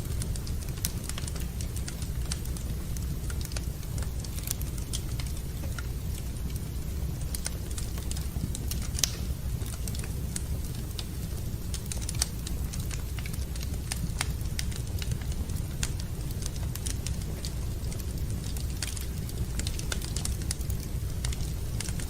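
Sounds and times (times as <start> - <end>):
wood fire crackling: 0.0 - 22.0
sharp fire pops: 7.2 - 11.1.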